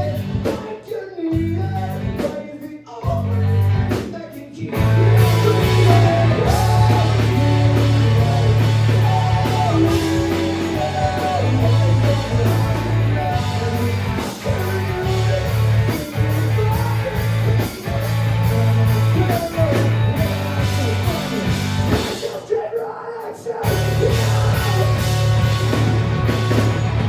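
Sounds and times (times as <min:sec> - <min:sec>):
bass line: 0:00.0 - 0:00.5, 0:01.4 - 0:02.2, 0:03.0 - 0:04.0, 0:04.7 - 0:22.2, 0:23.6 - 0:27.0
drums: 0:00.0 - 0:27.0
guitar melody: 0:04.8 - 0:15.9, 0:23.8 - 0:27.0.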